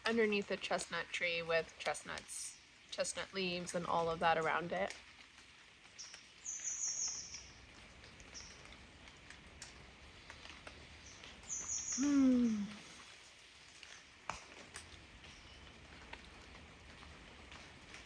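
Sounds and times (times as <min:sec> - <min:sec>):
small bird chirping: 0:06.0 - 0:07.6, 0:08.3 - 0:08.6, 0:11.0 - 0:12.9.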